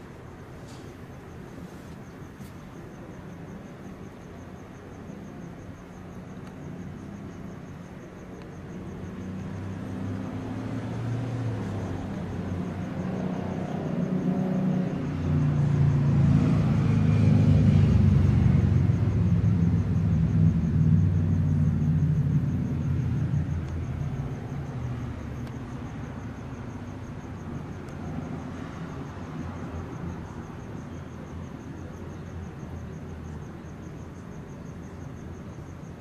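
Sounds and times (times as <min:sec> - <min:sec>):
vehicle passing by: 0:08.8 - 0:30.6.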